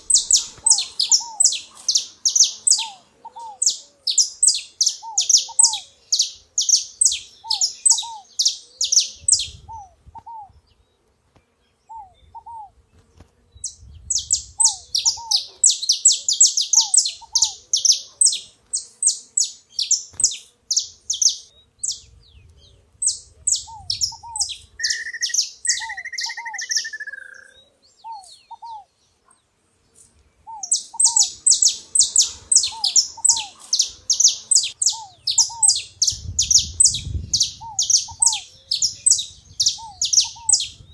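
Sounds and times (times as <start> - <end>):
finch singing high chirps: 0.0 - 10.6, 13.6 - 28.9, 30.0 - 40.9
whistled phrase: 24.8 - 27.5.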